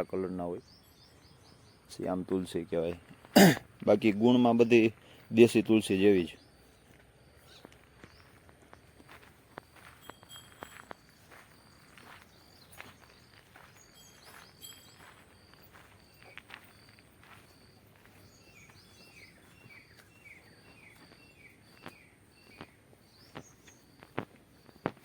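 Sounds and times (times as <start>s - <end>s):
faint footsteps: 6.6s - 25.0s.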